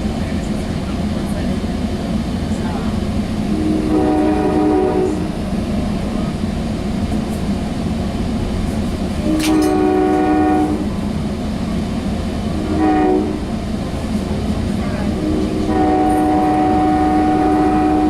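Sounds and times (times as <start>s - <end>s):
train rumbling: 0.0s - 18.0s
train horn blasts: 3.5s - 5.4s, 9.2s - 11.0s, 12.6s - 13.5s, 15.0s - 18.0s.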